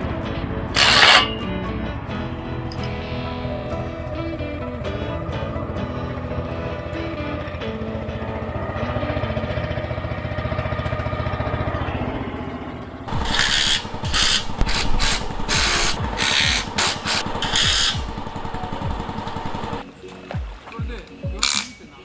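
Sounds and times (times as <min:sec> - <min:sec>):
impact driver rattling: 0:00.8 - 0:01.4, 0:13.1 - 0:19.6.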